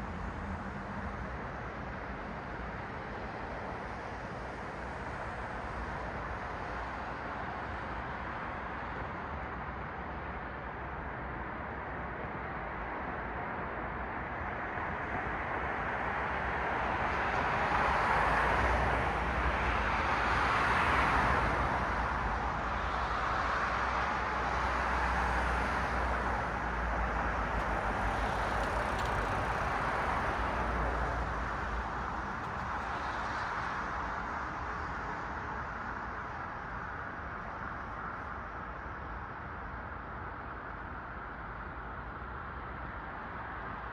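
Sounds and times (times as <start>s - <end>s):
car traffic passing: 26.6s - 33.5s.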